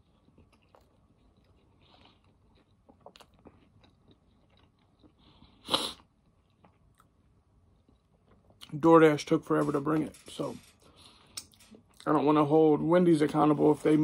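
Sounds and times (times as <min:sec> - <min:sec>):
person chewing: 0:00.0 - 0:08.7.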